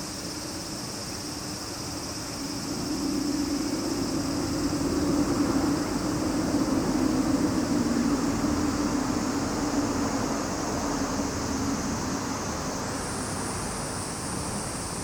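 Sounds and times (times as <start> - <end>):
cicadas droning: 0.0 - 15.0
low machine hum: 0.4 - 12.4.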